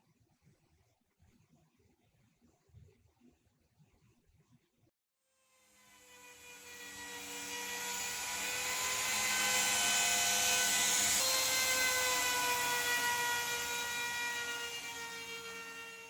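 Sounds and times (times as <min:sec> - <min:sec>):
power tool motor whining: 0:05.8 - 0:16.0.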